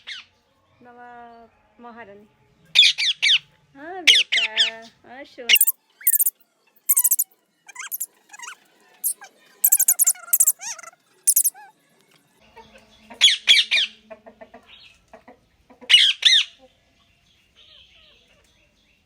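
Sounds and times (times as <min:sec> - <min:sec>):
parrot squawking: 0:05.5 - 0:06.3, 0:06.9 - 0:11.7.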